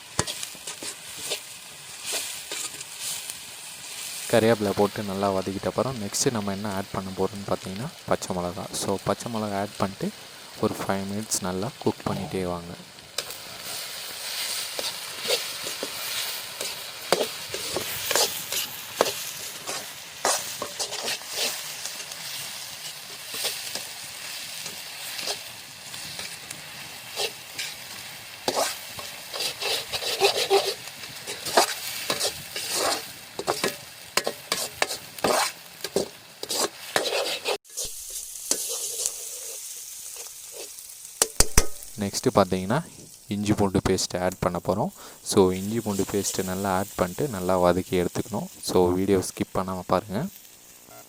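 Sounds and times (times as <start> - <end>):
vegetables sizzling in hot oil: 0.0 - 51.0
ladle scraping and knocking pan: 40.2 - 41.9.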